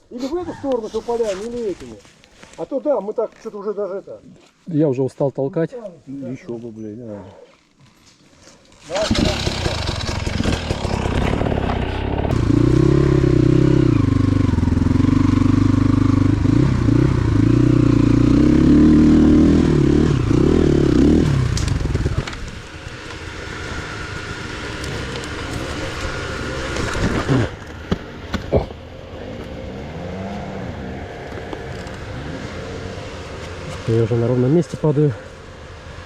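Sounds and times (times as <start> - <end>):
motorcycle engine revving: 8.9 - 36.0.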